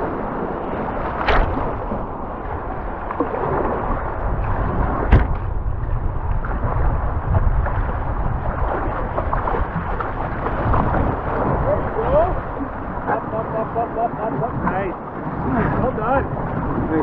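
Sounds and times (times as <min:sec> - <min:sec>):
sharp knocks: 0:01.1 - 0:01.8, 0:05.1 - 0:05.5.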